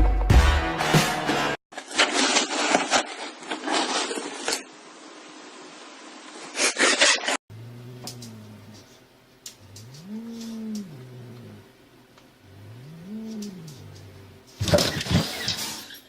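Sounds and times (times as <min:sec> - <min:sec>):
low steady hum: 0:07.5 - 0:15.1.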